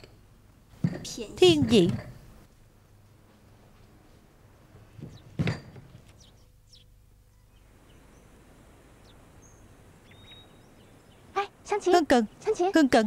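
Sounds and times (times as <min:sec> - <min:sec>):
faint bird chirps: 0:06.1 - 0:13.0.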